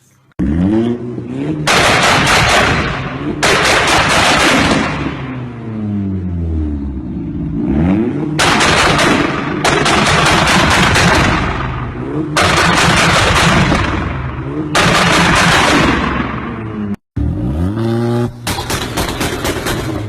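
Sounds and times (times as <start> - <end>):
car engine revving: 0.4 - 20.0
exhaust crackling and popping: 18.3 - 20.0.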